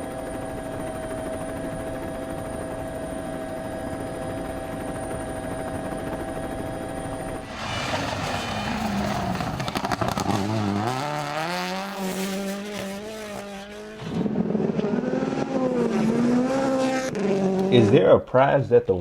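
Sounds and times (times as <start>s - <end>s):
another car engine: 7.4s - 17.8s
rally car engine revving: 7.4s - 18.1s.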